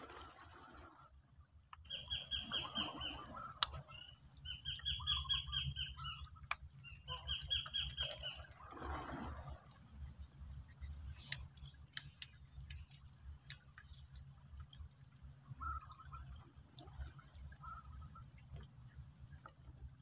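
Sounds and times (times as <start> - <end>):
bird chirping: 3.9 - 6.2.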